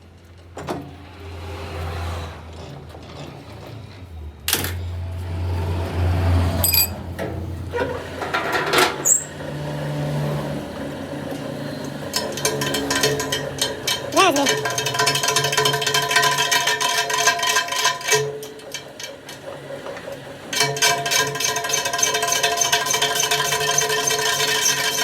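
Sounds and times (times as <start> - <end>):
metal clinks and scrapes: 6.5 - 7.2
sharp metallic clank: 6.6 - 7.0.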